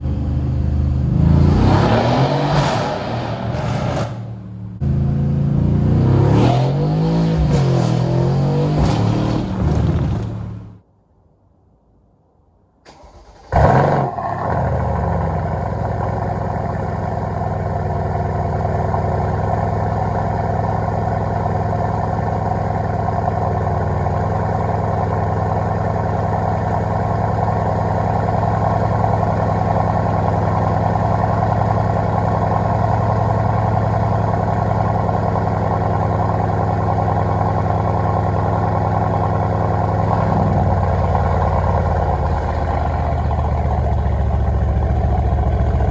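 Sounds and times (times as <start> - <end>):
car engine cold start and idle: 12.9 - 45.9.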